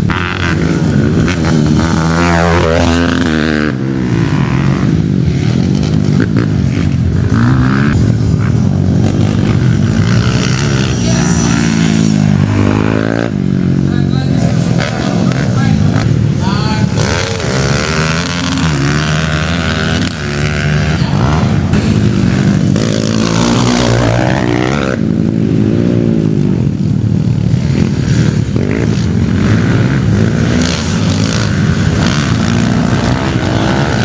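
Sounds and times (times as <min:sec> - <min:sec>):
dirt bike engines revving: 0:00.0 - 0:34.0.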